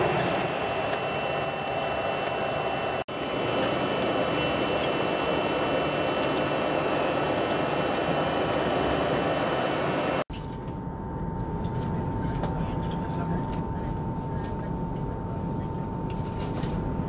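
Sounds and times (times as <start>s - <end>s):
train rolling noise from inside: 0.0s - 10.5s.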